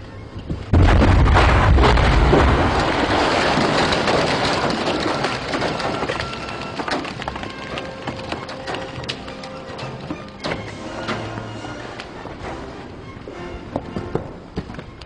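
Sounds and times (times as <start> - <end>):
debris pattering and crackling: 0.5 - 15.0
explosion low rumble: 0.7 - 4.2.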